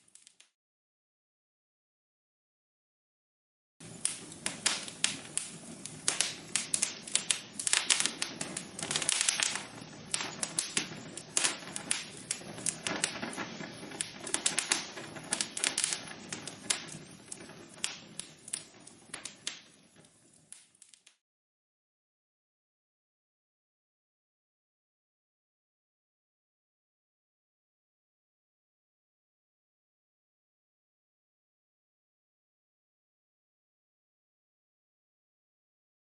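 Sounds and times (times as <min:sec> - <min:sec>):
logs crackling in a fireplace: 0:00.1 - 0:00.5, 0:03.8 - 0:21.2.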